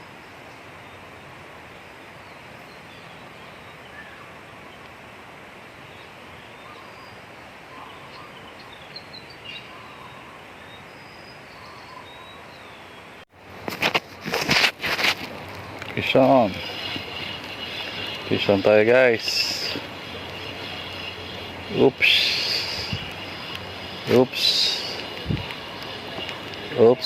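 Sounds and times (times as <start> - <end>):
outdoor ambience hiss: 0.0 - 27.0
faint bird chirps: 5.9 - 13.2.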